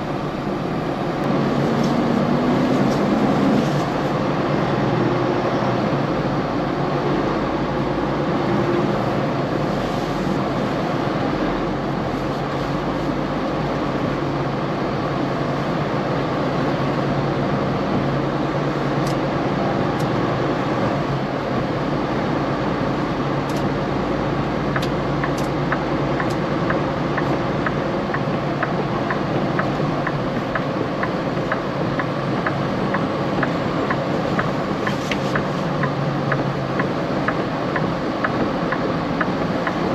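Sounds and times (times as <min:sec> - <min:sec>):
truck engine and road drone: 0:00.0 - 0:39.9
steady ticking: 0:24.8 - 0:39.9.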